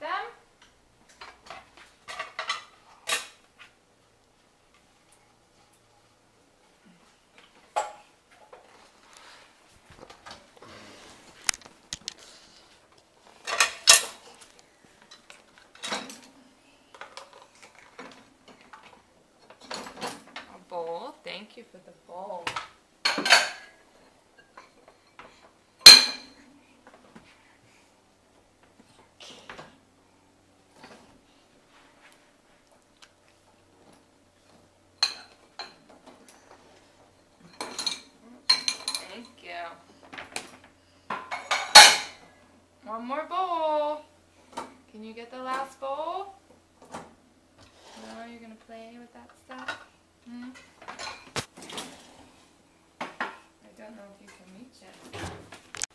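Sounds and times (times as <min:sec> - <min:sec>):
cutlery and dishes clattering: 0:01.2 - 0:03.4, 0:13.4 - 0:14.3, 0:15.1 - 0:16.3, 0:23.0 - 0:23.8, 0:25.9 - 0:26.4, 0:37.4 - 0:39.4, 0:41.1 - 0:42.2.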